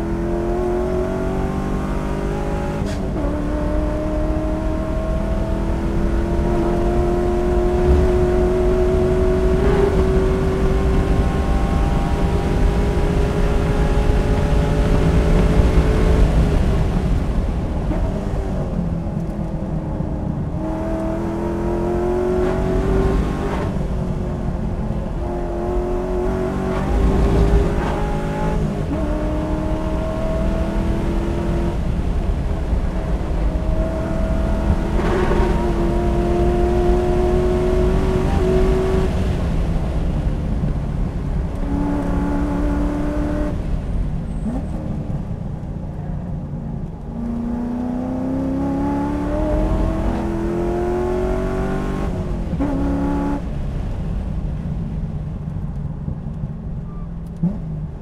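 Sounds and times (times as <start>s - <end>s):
car engine revving through gears: 0.0s - 17.2s, 20.0s - 40.6s, 41.3s - 45.6s, 46.7s - 53.8s.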